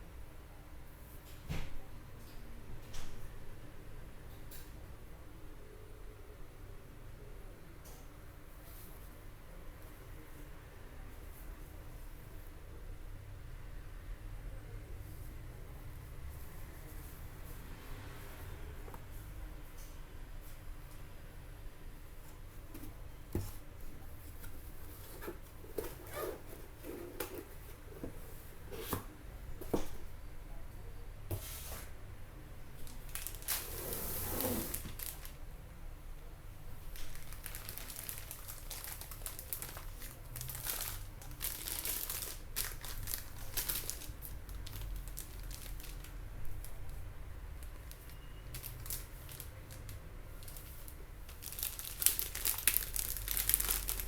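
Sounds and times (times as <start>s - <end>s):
packaging crinkling and rustling: 32.8s - 35.5s, 36.8s - 54.0s.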